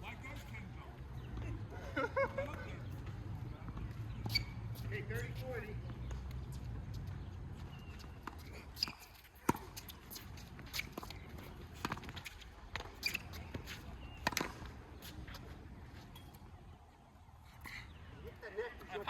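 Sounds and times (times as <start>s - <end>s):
tennis ball hit by racquet: 14.1s - 14.6s.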